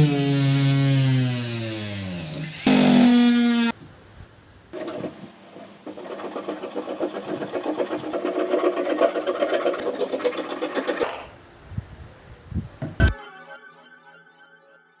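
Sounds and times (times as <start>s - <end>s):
small motor buzzing: 0.0s - 3.7s.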